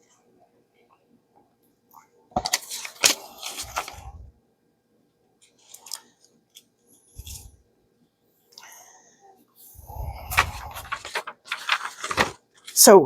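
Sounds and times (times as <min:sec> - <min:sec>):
paper rustling: 0:02.4 - 0:04.2, 0:07.2 - 0:07.5, 0:10.0 - 0:12.8.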